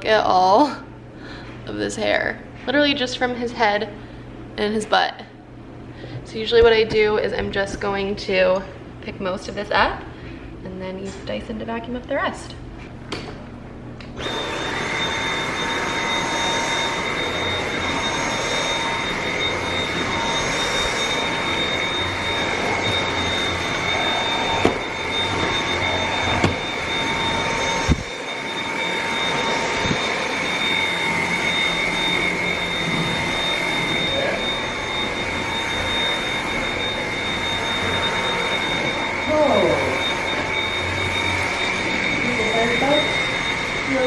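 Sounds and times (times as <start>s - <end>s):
vacuum cleaner whining: 0.0s - 10.6s, 14.0s - 44.0s
vacuum cleaner bumping knocks: 24.6s - 24.8s, 26.4s - 26.6s.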